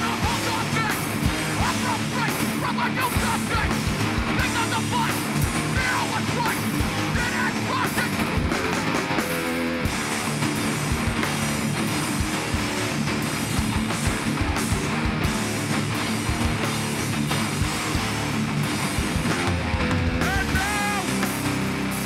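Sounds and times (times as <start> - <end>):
live hardcore band playing: 0.0 - 22.0.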